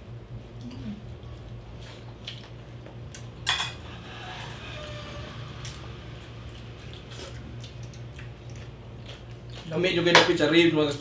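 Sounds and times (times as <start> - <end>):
steady low hum: 0.0 - 11.0
wet chewing and mouth smacks: 1.4 - 3.3, 6.5 - 9.7.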